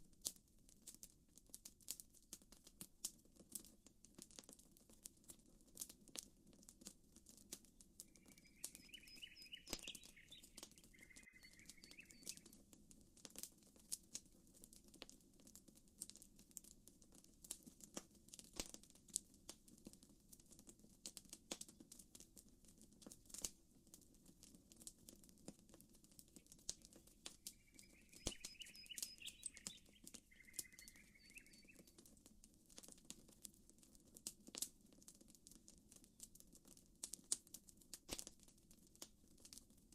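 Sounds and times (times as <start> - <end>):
campfire crackling and popping: 0.0 - 39.9
bird song: 8.0 - 12.6, 26.3 - 32.0.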